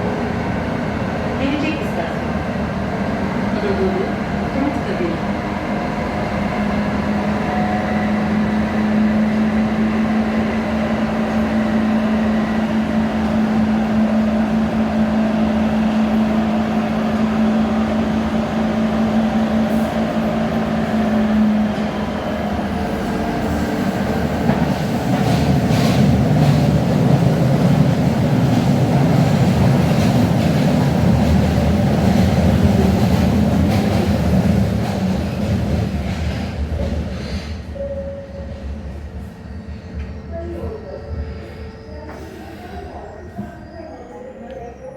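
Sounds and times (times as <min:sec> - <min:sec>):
metro car running on rails: 0:00.0 - 0:44.9
wheels clacking on rails: 0:19.6 - 0:37.6.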